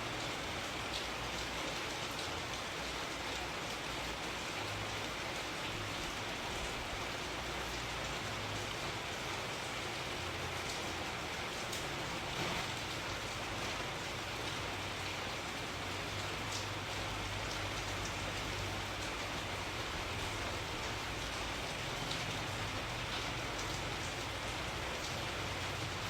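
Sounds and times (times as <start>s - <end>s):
steady rain hiss: 0.0s - 26.0s.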